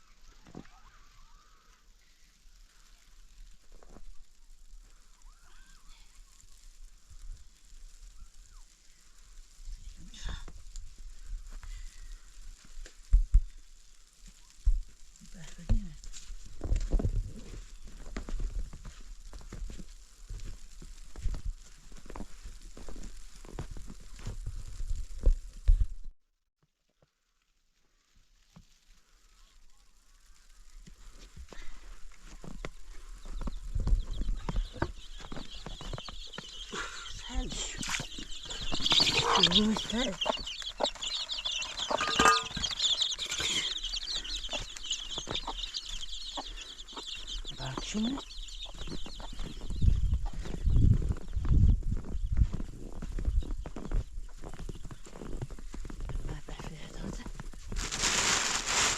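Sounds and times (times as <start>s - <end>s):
chickens clucking: 33.0s - 50.4s.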